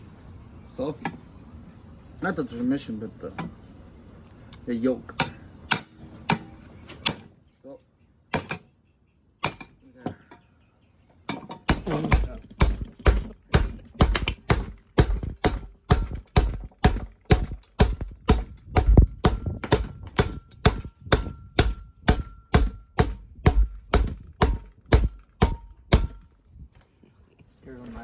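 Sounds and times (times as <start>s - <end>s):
hammering: 5.1s - 7.3s, 9.4s - 9.8s, 11.3s - 26.4s.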